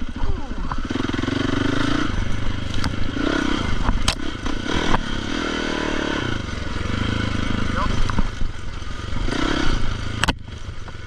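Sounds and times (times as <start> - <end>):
dirt bike engine revving: 0.0 - 11.0
sharp clicks and clatter: 2.1 - 5.1, 7.8 - 9.0.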